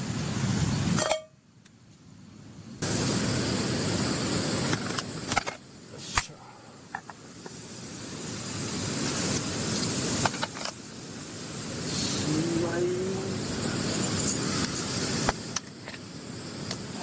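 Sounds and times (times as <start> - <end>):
meat sizzling on a grill: 7.0 - 17.0
sharp clicks and crackles: 9.0 - 10.8.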